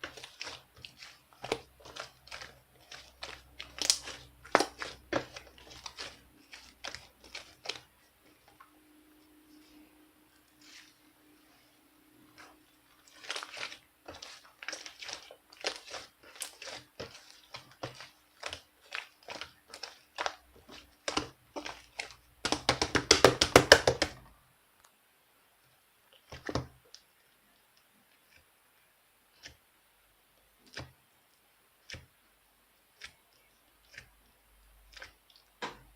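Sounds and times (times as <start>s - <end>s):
crinkling handling sounds: 0.0s - 23.0s.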